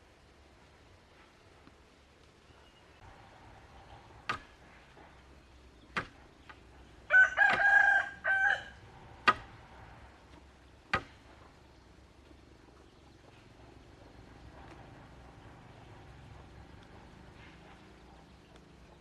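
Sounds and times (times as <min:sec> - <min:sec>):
sharp knocks: 0:04.2 - 0:05.1, 0:05.9 - 0:06.6, 0:09.2 - 0:09.6, 0:10.9 - 0:11.4
rooster crowing: 0:07.1 - 0:08.8.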